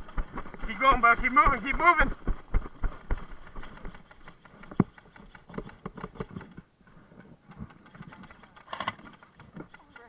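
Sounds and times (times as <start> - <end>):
footsteps: 0.0 - 7.4.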